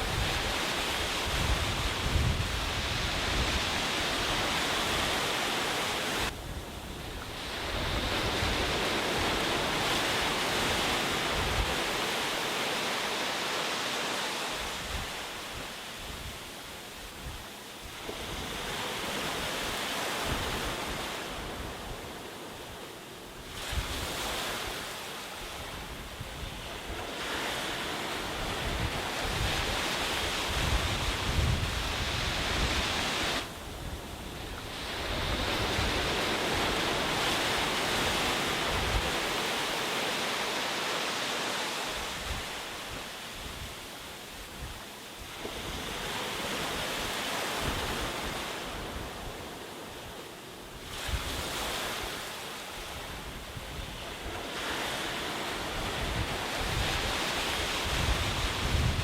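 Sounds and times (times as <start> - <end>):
wind buffeting microphone: 0.0 - 12.0, 25.6 - 39.5, 52.9 - 59.0
sea surf washing onto beach: 0.0 - 59.0.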